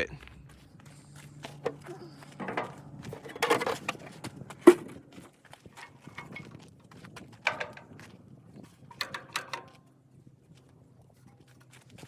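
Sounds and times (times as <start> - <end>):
hand tools clinking and clattering: 0.4 - 10.0.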